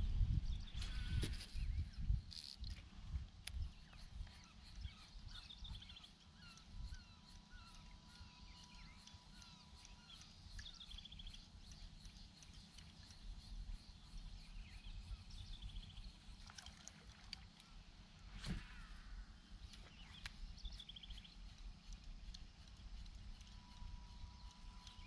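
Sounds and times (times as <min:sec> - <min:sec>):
birds chirping: 0:03.6 - 0:16.4, 0:18.5 - 0:25.0.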